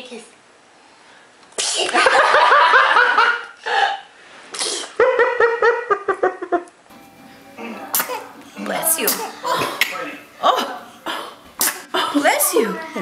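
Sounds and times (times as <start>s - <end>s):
toddler sneezing: 1.6s - 2.0s, 4.5s - 5.0s, 7.8s - 8.3s, 8.9s - 9.8s, 11.0s - 12.1s.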